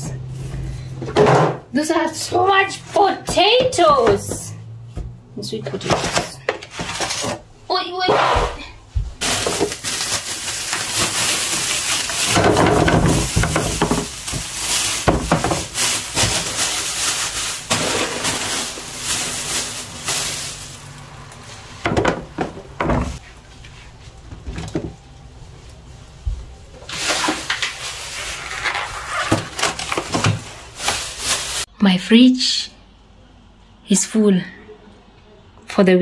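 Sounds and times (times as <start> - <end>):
bags rustling and knocking: 9.1 - 21.0.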